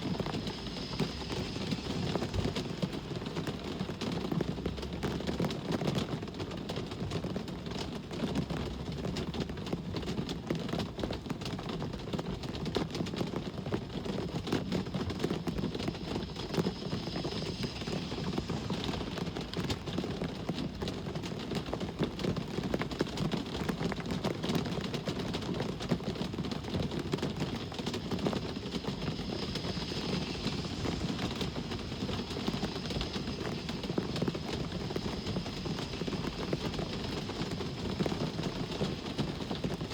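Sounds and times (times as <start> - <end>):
passing vehicles hissing: 0.0 - 3.8, 14.4 - 20.6, 27.1 - 39.9
steady rain: 0.0 - 39.9
low rumble of traffic: 14.4 - 20.8, 26.5 - 39.9.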